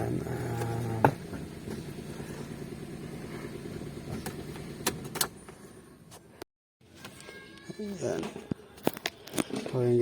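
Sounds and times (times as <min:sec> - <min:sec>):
car engine idling: 0:00.0 - 0:06.4.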